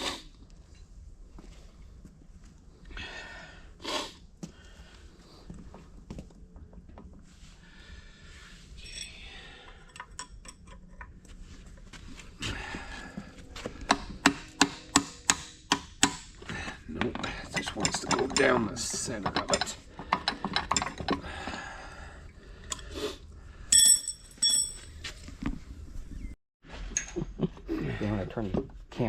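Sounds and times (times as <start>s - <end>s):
metal parts and tools clanking: 8.8s - 11.8s, 13.8s - 21.3s, 23.7s - 25.0s.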